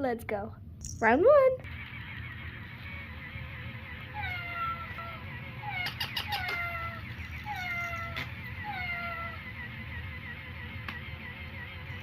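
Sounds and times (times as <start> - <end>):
cat meowing: 4.1 - 9.5.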